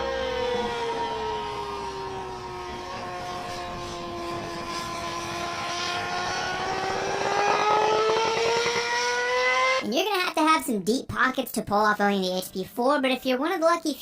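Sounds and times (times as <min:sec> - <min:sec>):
motorcycle engine revving high: 0:00.0 - 0:09.8.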